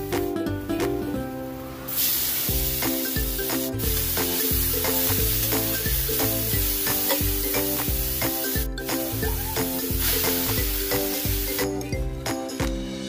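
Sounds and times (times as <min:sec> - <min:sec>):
background music with a beat: 0:00.0 - 0:01.2, 0:02.5 - 0:13.0
food sizzling in a frying pan: 0:01.5 - 0:11.9.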